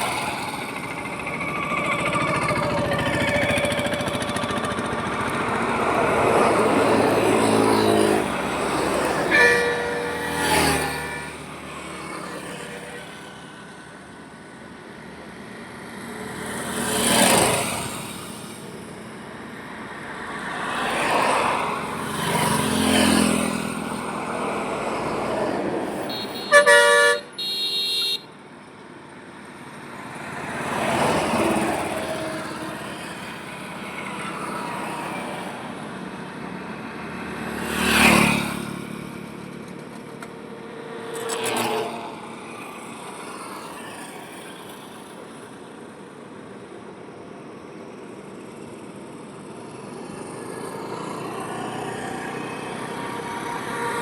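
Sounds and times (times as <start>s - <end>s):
vehicles passing on highway: 0.0s - 54.0s
vehicle horn blasts: 8.7s - 11.8s, 25.9s - 28.3s.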